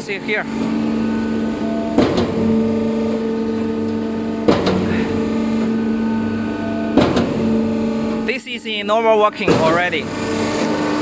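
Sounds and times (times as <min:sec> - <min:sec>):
pistons clunking: 0:00.0 - 0:06.0, 0:06.9 - 0:08.2
concrete pump motor hum: 0:00.0 - 0:11.0.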